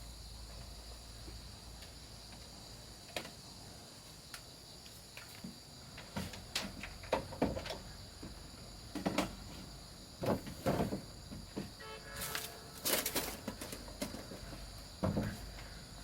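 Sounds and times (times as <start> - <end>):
insects chirping: 0.0 - 16.0
wooden pieces knocking and scraping: 5.2 - 15.7.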